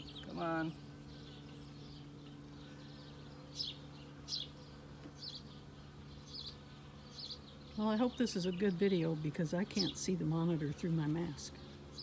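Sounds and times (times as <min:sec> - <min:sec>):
honeybees humming: 0:00.0 - 0:12.0.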